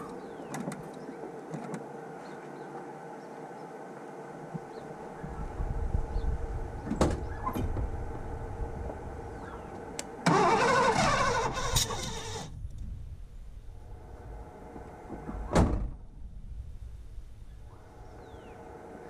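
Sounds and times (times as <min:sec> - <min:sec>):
engine cranking and firing unevenly: 0:09.8 - 0:12.5.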